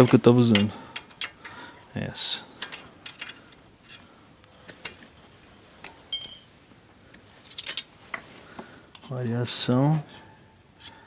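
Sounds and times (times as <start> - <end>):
wrench clinking on metal bolt: 0.0 - 1.5, 6.1 - 7.9.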